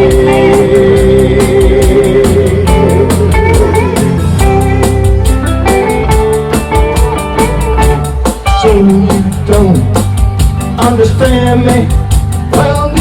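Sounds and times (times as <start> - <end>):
person singing: 0.0 - 4.4, 8.5 - 10.1, 10.7 - 13.0
bass guitar: 0.0 - 13.0
drums with cymbal strokes: 0.0 - 13.0
electric guitar: 0.0 - 13.0.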